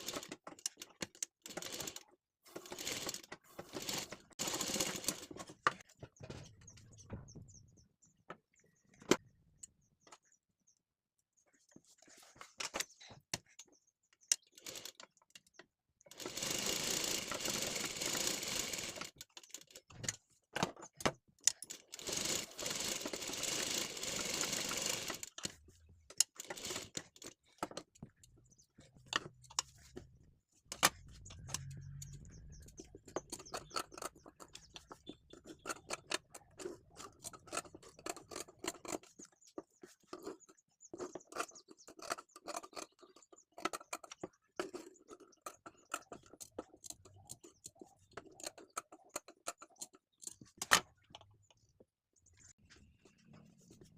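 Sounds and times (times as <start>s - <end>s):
sewing machine stitching: 0.0s - 5.8s, 14.5s - 15.0s, 16.1s - 20.1s, 21.5s - 27.8s.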